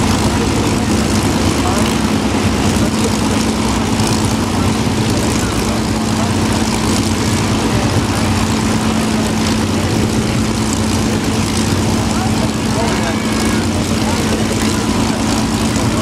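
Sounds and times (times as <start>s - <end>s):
propeller plane engines flying by: 0.0s - 16.0s.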